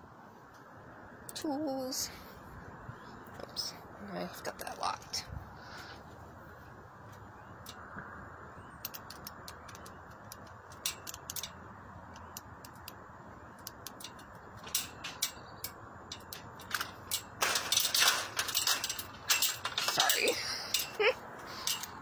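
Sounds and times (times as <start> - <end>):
sharp clicks and rattles: 7.1 - 22.0.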